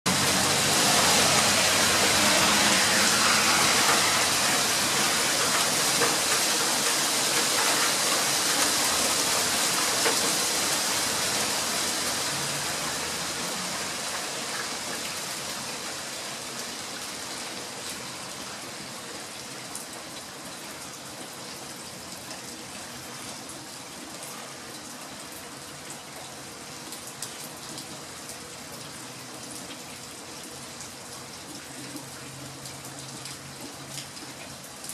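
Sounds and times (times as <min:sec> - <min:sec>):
water spilling off roof: 0:00.1 - 0:15.9
heavy rain on wooden roof: 0:00.1 - 0:34.9.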